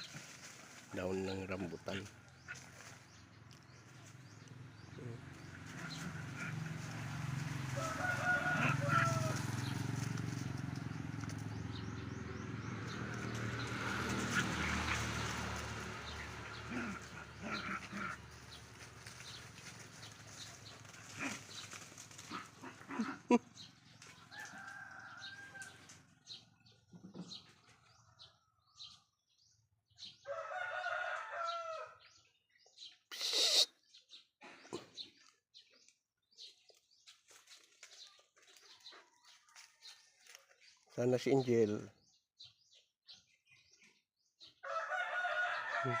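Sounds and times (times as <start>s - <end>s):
rooster crowing: 7.6s - 9.7s, 24.2s - 26.0s, 30.2s - 32.0s, 44.6s - 46.0s.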